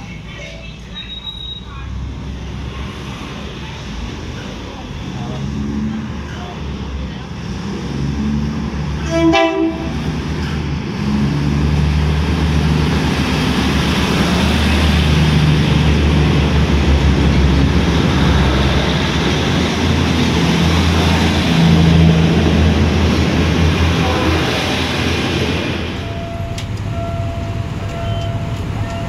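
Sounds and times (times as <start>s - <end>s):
train rumbling past: 0.0s - 29.0s
train horn: 9.0s - 10.0s, 23.9s - 24.9s.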